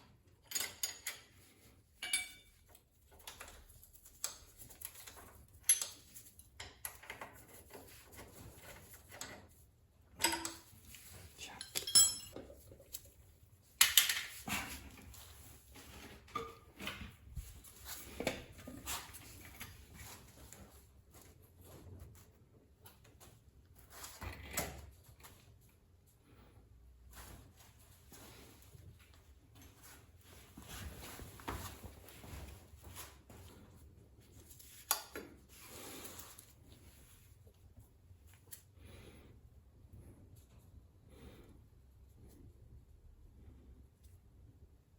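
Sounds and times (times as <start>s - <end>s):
tools and engine parts clinking: 0.2s - 3.7s, 4.8s - 7.5s, 10.1s - 12.7s
metallic ring: 2.0s - 2.7s, 11.8s - 12.4s.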